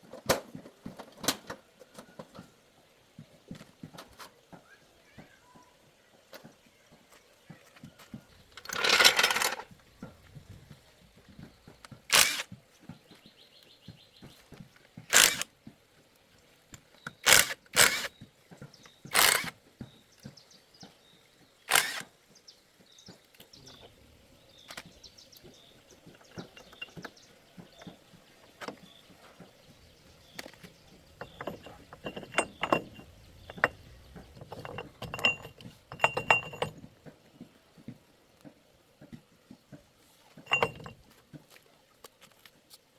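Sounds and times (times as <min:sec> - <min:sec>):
metal tools clanking: 0:08.3 - 0:10.8, 0:15.1 - 0:15.4, 0:24.6 - 0:37.1, 0:40.4 - 0:41.1
faint metallic ring: 0:31.1 - 0:36.9, 0:40.5 - 0:41.0.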